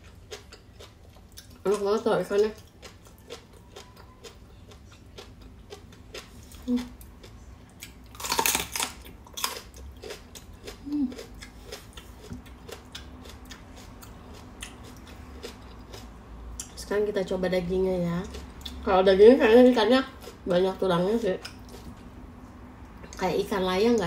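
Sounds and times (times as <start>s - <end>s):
crisp chewing: 0.0s - 16.7s.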